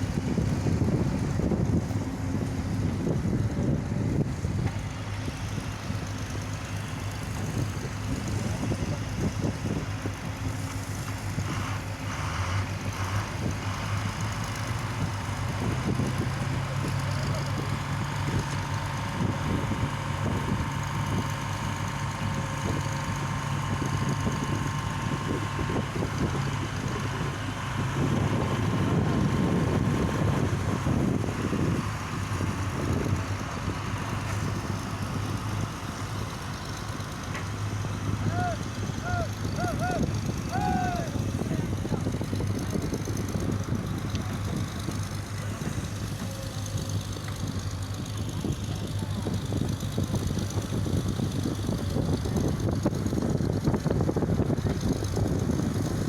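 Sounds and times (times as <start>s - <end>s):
excavator engine running: 0.0s - 56.0s
higher hum: 37.9s - 42.0s.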